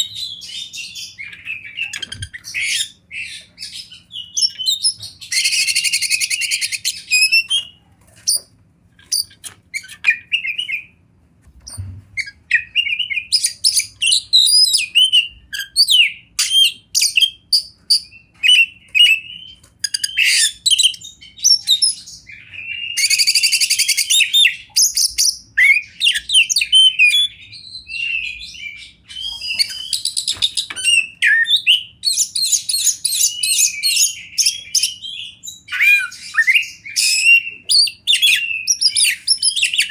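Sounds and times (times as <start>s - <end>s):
bird singing whistled phrases: 12.2s - 39.9s.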